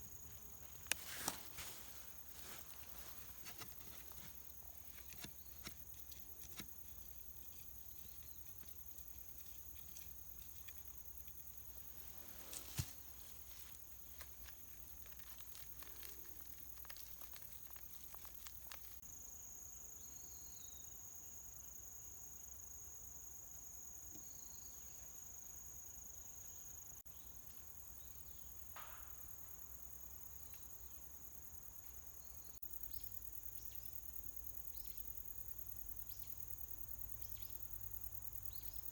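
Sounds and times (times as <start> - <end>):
insects trilling: 0.0 - 21.8, 24.2 - 38.9.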